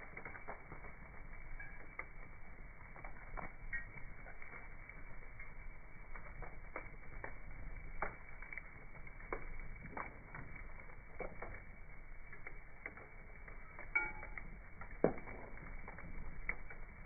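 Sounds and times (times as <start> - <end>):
slowed bonfire crackling: 0.0 - 17.0.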